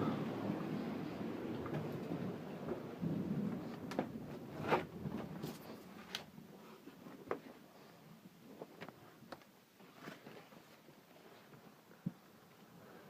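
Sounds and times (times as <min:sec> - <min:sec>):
thunder rumbling: 0:00.0 - 0:05.9
rain: 0:00.0 - 0:06.3.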